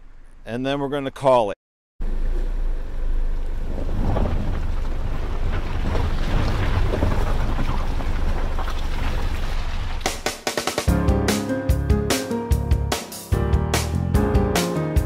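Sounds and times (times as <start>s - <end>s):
car engine rumbling: 2.0s - 10.4s.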